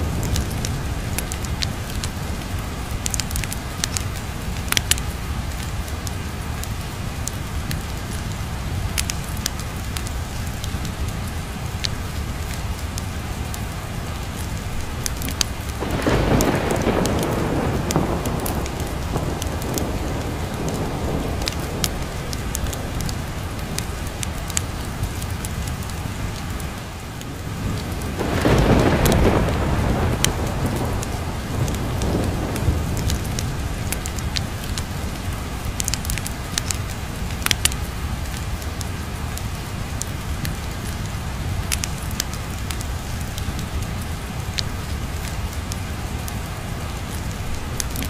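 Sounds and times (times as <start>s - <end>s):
steady rain: 0.0s - 48.0s
thunder rolling: 15.7s - 24.3s, 27.6s - 34.8s.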